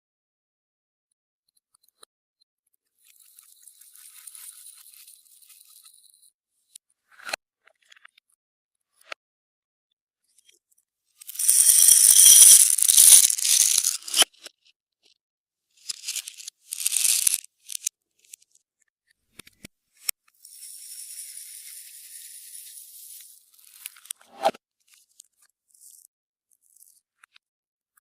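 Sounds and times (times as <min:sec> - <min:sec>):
particles rattling in shaken container: 0:11.3 - 0:14.2, 0:15.9 - 0:17.9.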